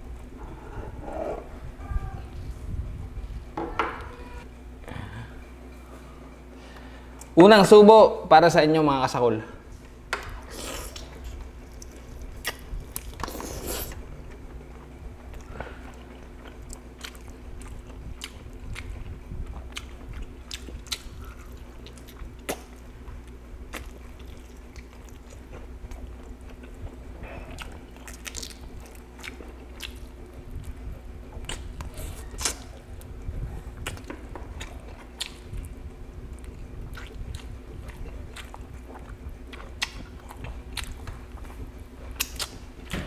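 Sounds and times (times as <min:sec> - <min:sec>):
faint low hum: 0:00.0 - 0:43.0
man chewing food: 0:09.8 - 0:43.0.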